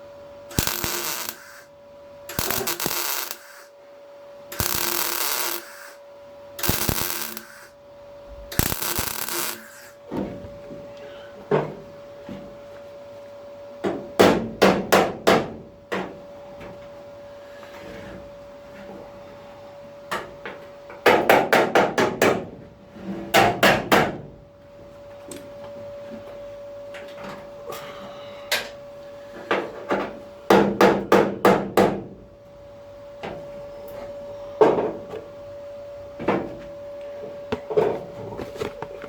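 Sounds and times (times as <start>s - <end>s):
steady hum: 0.0s - 14.0s, 32.0s - 39.0s.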